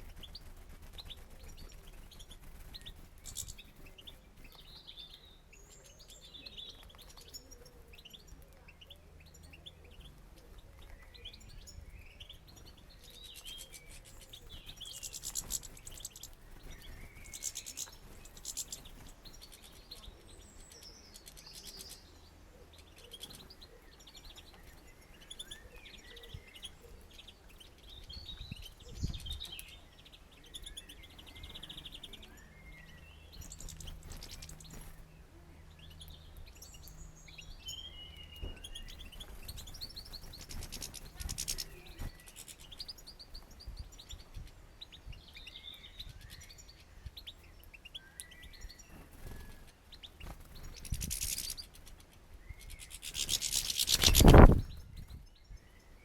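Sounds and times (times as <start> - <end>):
wings fluttering: 0.0 - 4.8, 12.5 - 20.2, 33.3 - 35.1, 38.8 - 43.5, 48.8 - 55.2
songbirds chirping: 0.0 - 56.0.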